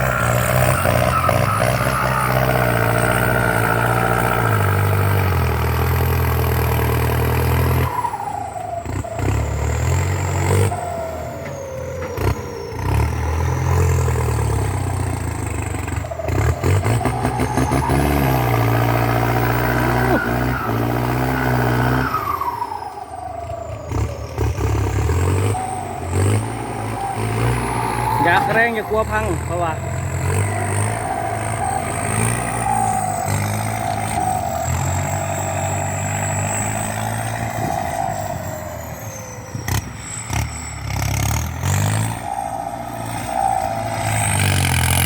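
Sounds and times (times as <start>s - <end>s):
tractor diesel engine labouring: 0.0s - 45.0s
turbo whistle: 16.0s - 23.7s, 24.8s - 45.0s.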